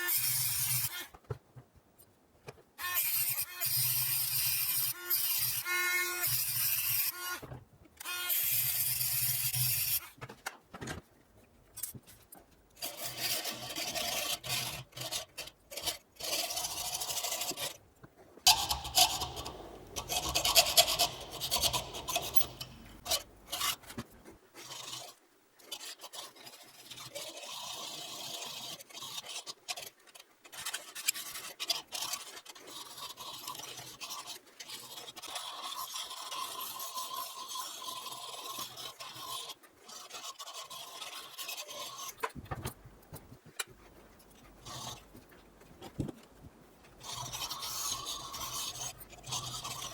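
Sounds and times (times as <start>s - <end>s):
hand tool scraping: 0.0s - 1.3s, 18.5s - 29.9s.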